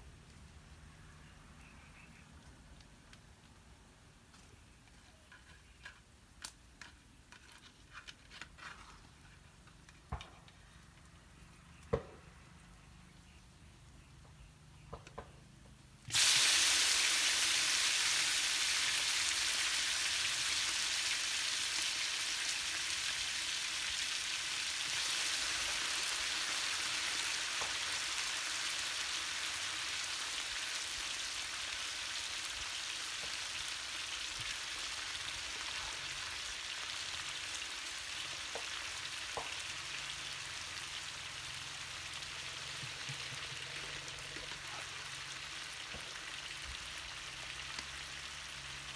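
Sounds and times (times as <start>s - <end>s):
food sizzling in hot oil: 16.1s - 48.9s.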